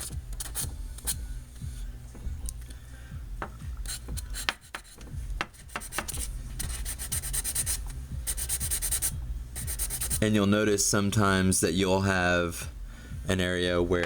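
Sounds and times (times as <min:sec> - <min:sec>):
sandpaper rubbing: 0:00.0 - 0:01.2, 0:03.9 - 0:10.2.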